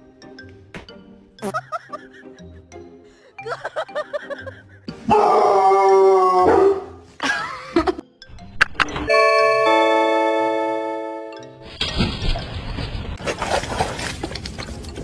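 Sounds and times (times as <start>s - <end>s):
background music: 0.0s - 11.8s
dog howling and whining: 5.1s - 6.9s.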